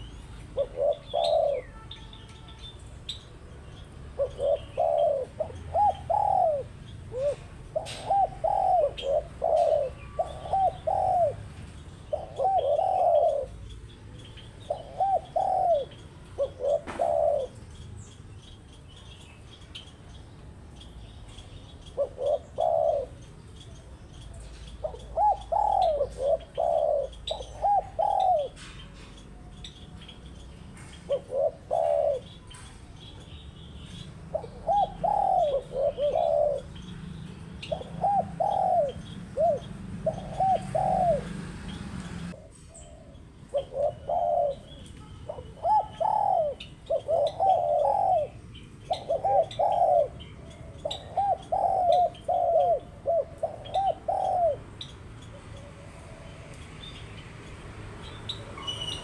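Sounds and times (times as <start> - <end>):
dove cooing: 0.0 - 2.3, 3.8 - 17.9, 21.3 - 33.3, 34.0 - 56.7
small birds chirping: 0.0 - 59.0.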